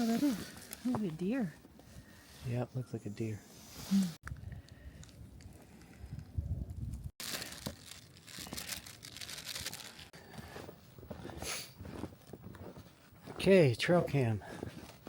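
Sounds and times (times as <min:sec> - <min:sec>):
crinkling crunching handling noise: 0:04.2 - 0:13.3.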